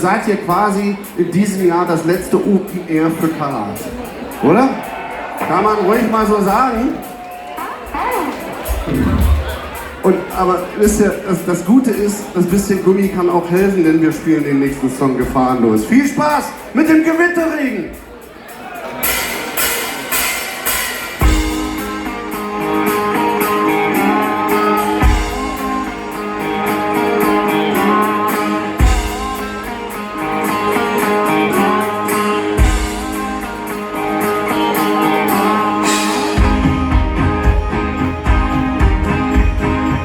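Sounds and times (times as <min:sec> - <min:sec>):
drum beat: 0:06.3 - 0:11.3, 0:27.2 - 0:34.2
heavy low hits: 0:08.7 - 0:10.2
electric guitar over chords: 0:08.8 - 0:10.0, 0:21.8 - 0:40.0.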